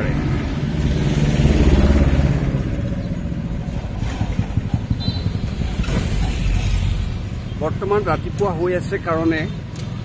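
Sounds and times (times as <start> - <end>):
vehicle engine passing by: 0.0 - 4.7.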